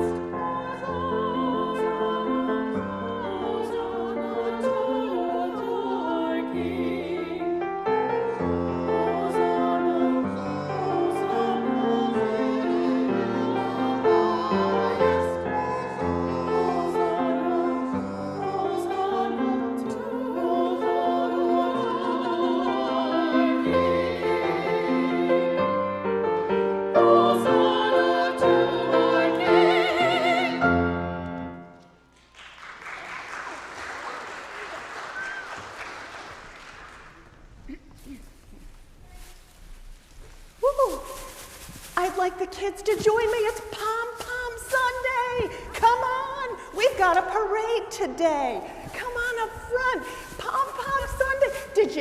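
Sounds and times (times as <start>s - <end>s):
classical singing voice: 0.0s - 31.9s, 40.6s - 52.0s.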